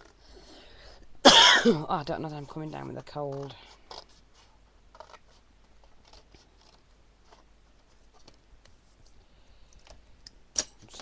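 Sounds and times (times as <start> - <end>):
card being handled and trimmed: 2.4 - 9.2.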